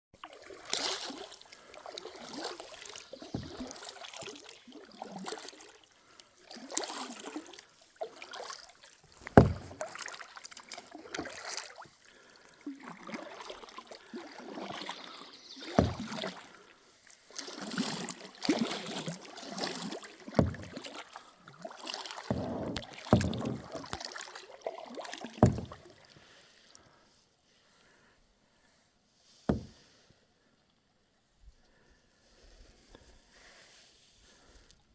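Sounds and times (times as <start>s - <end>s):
paddle strokes splashing in water: 0.2s - 26.7s, 29.3s - 30.0s
sharp knocks: 9.3s - 9.8s, 15.8s - 16.1s, 20.4s - 20.7s, 22.3s - 23.8s, 25.4s - 25.8s, 29.5s - 29.8s.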